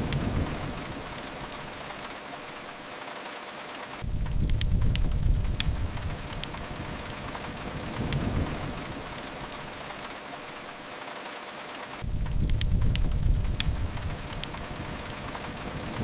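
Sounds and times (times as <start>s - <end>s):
rain on a window: 0.0s - 16.0s
wood fire crackling: 0.0s - 16.0s
heavy low rumble: 4.0s - 9.2s, 12.0s - 16.0s.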